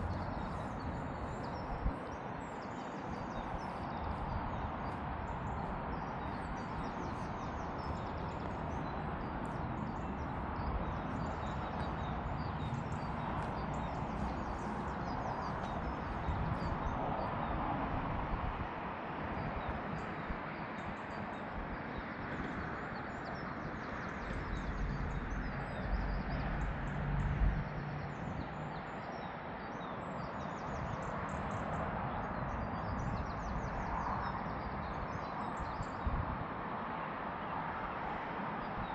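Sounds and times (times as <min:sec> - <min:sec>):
small birds chirping: 0:00.0 - 0:16.8
outdoor background noise: 0:00.0 - 0:38.9.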